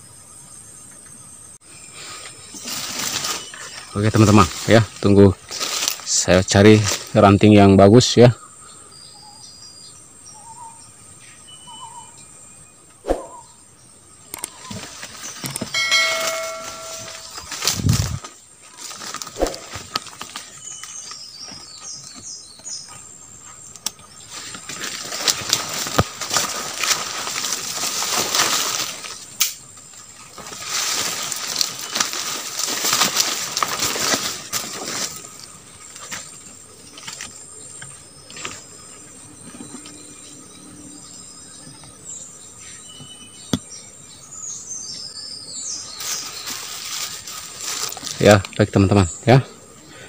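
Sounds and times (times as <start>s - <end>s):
leaves and brush rustling: 1.7s - 8.2s, 14.4s - 40.0s, 45.4s - 50.0s
twigs crackling: 2.6s - 7.4s, 14.3s - 22.7s, 23.7s - 38.8s, 45.9s - 49.1s.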